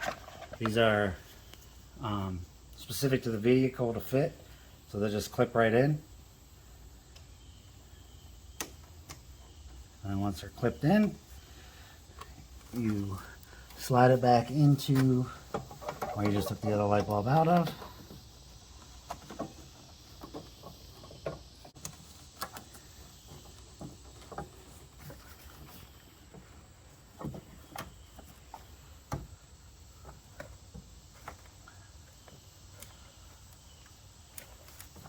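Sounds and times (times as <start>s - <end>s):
faint steady hiss: 0.0s - 35.0s
light clicks of plastic parts: 12.0s - 13.9s, 30.0s - 35.0s.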